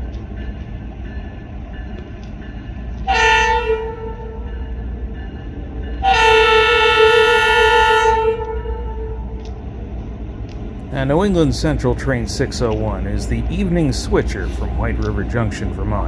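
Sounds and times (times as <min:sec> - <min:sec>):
locomotive air horn blasts: 0:03.1 - 0:04.4, 0:06.0 - 0:09.2.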